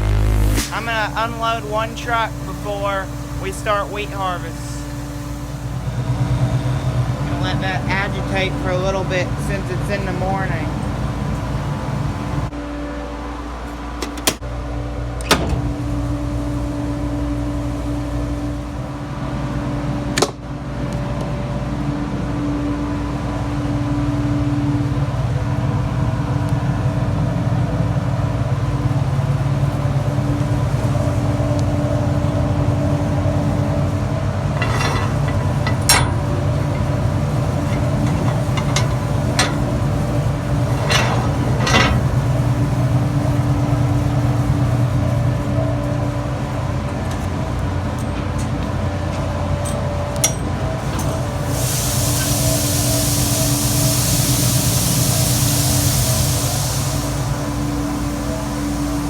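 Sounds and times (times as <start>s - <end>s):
farm machinery humming: 0.0s - 20.3s, 21.5s - 59.0s
clicks and knocks: 34.5s - 42.3s.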